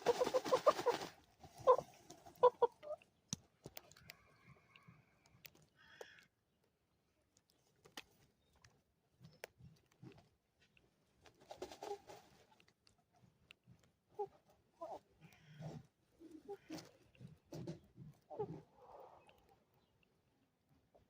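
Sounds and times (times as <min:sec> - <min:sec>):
hens clucking softly: 0:00.0 - 0:06.3, 0:11.3 - 0:21.0
small scratches and clicks: 0:01.2 - 0:06.3, 0:07.3 - 0:20.2.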